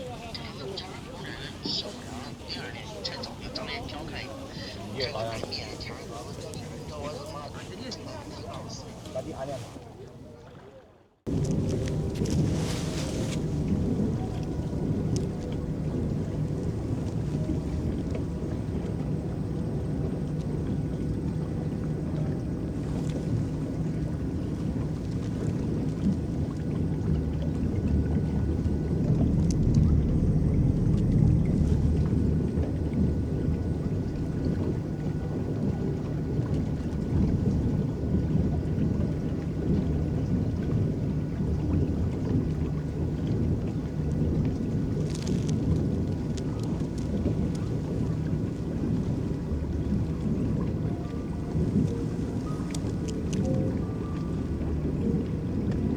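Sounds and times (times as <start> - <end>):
water washing against boat hull: 0.0 - 55.9
faint clicks: 51.8 - 53.6.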